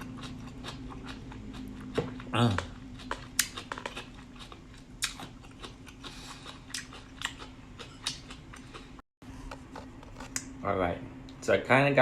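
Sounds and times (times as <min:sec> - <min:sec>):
chewing crunchy vegetables: 0:00.0 - 0:09.0.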